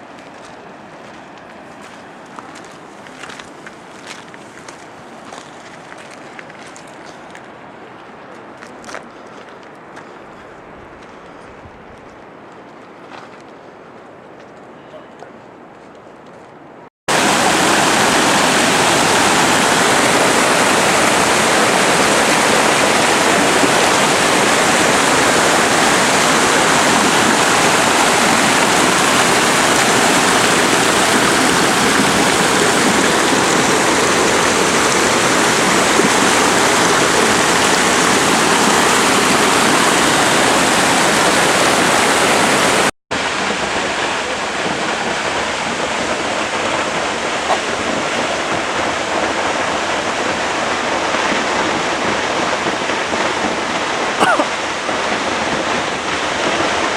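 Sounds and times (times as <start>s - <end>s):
waterfall rushing: 17.1s - 56.9s.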